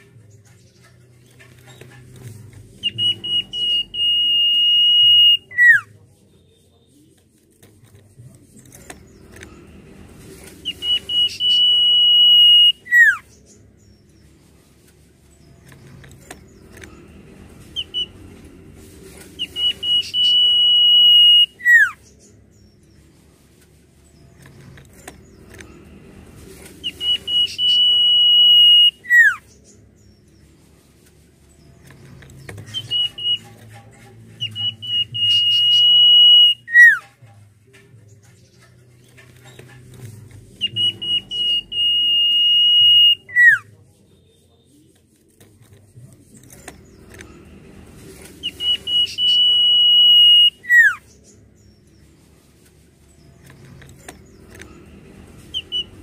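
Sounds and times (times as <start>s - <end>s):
bird whistling song: 2.8s - 5.9s, 10.6s - 13.5s, 17.8s - 18.2s, 19.4s - 22.6s, 26.8s - 30.1s, 32.4s - 33.8s, 34.4s - 37.1s, 40.6s - 43.7s, 48.4s - 51.7s, 55.5s - 56.0s.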